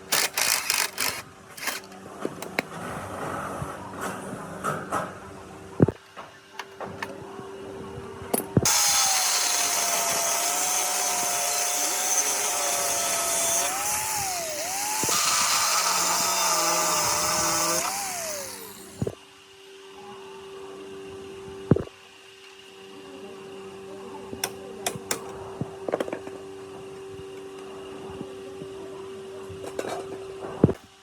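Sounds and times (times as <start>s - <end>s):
electric power tool running: 0.0s - 1.8s, 8.6s - 19.2s.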